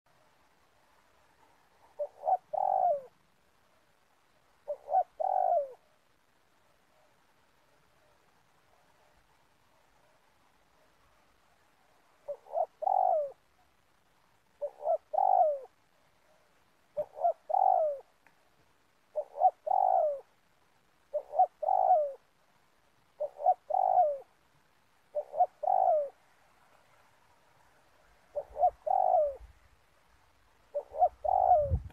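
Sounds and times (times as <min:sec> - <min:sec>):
dove cooing: 0:01.2 - 0:03.2, 0:04.6 - 0:06.0, 0:11.9 - 0:13.7, 0:14.6 - 0:18.2, 0:19.1 - 0:20.4, 0:21.1 - 0:22.3, 0:23.1 - 0:24.4, 0:25.1 - 0:26.3, 0:28.3 - 0:29.6, 0:30.7 - 0:31.9.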